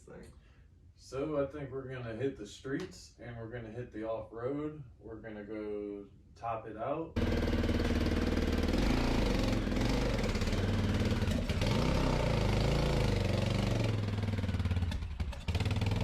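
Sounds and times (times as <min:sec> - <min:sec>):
dirt bike engine running: 0:07.2 - 0:16.0.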